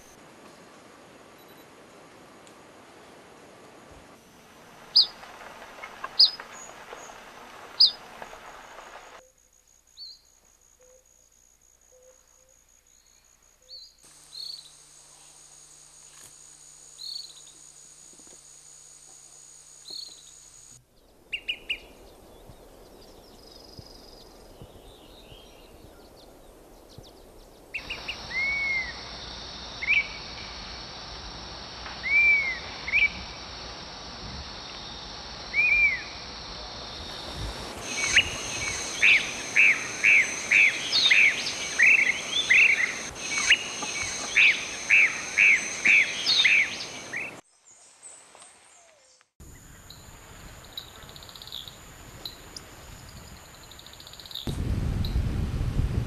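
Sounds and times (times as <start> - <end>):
high insect drone: 4.2 - 24.2, 27.6 - 47.6
flycatcher whistled calls: 19.8 - 22.2, 27.8 - 29.1, 29.8 - 30.2, 32.0 - 33.2, 35.5 - 36.2, 37.8 - 47.4.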